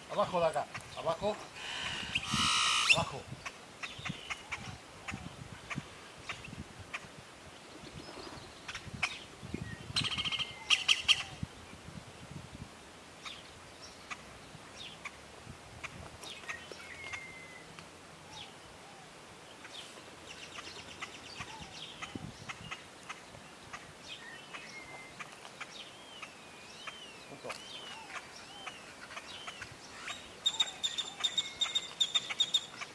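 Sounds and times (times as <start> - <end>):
birds chirping: 0.1 - 6.5, 15.8 - 32.9.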